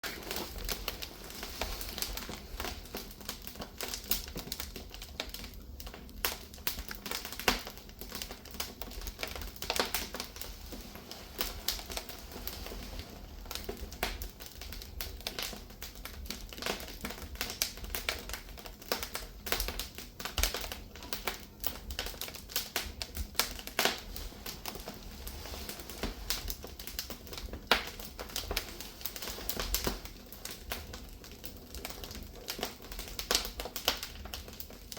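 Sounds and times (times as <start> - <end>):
firewood crackling and popping: 0.0 - 34.9.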